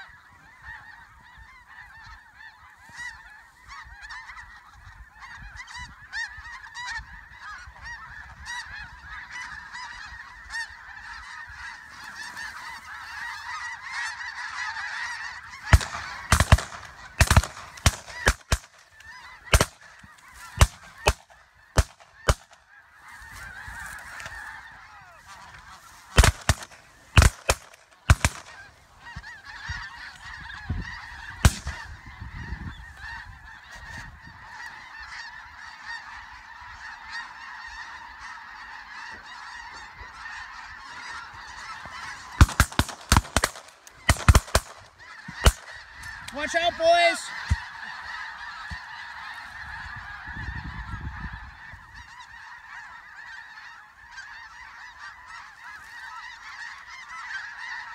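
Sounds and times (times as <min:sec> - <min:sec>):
snow geese honking chorus: 0:00.0 - 0:57.9
shotgun shots: 0:15.7 - 0:18.7, 0:19.5 - 0:19.8, 0:26.2 - 0:28.6, 0:31.4 - 0:31.8, 0:42.4 - 0:44.8.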